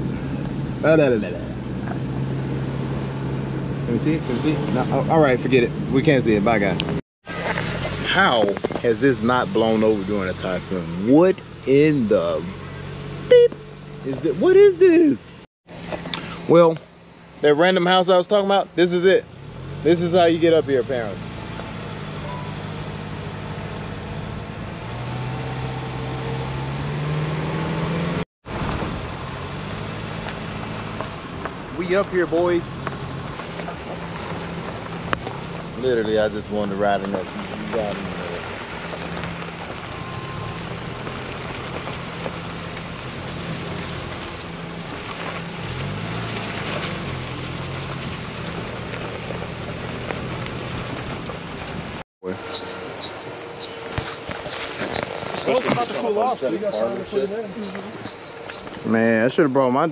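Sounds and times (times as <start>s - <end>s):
car engine humming uphill: 0.0s - 59.9s
road and wind noise: 0.0s - 59.9s.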